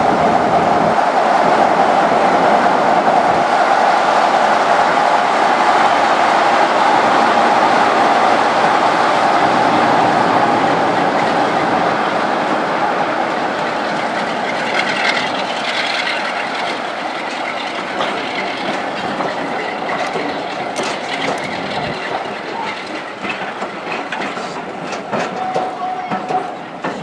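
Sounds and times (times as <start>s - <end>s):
train coaches rumbling past: 0.0s - 27.0s
wheels clicking over rail joints: 0.0s - 27.0s.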